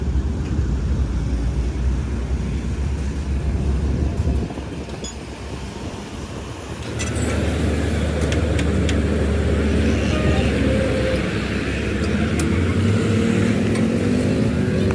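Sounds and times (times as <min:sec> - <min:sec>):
engine running: 0:00.0 - 0:14.9.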